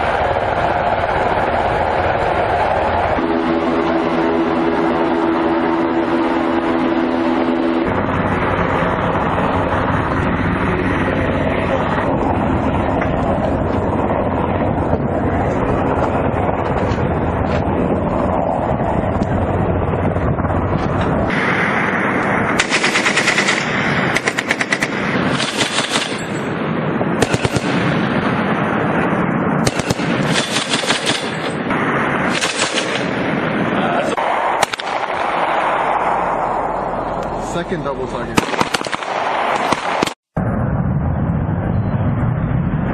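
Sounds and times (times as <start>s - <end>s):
aircraft engine noise: 0.0s - 42.9s
machine-gun fire bursts: 22.6s - 26.4s, 27.2s - 28.0s, 29.6s - 31.5s, 32.3s - 33.1s, 38.4s - 40.2s.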